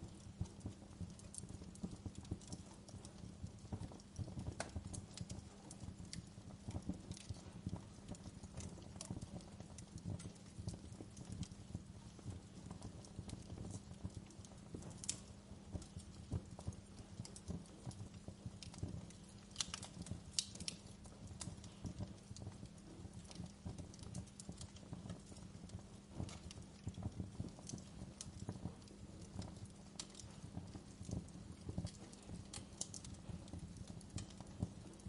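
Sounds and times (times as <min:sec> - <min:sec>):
wood fire crackling: 0:00.0 - 0:35.0
sharp fire pops: 0:18.6 - 0:22.6, 0:26.0 - 0:35.0.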